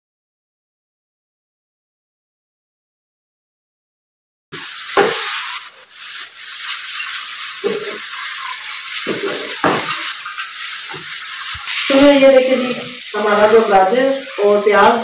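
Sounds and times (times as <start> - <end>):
spatula scraping and knocking pan: 4.6 - 15.0
vegetables sizzling in a pan: 4.6 - 15.0.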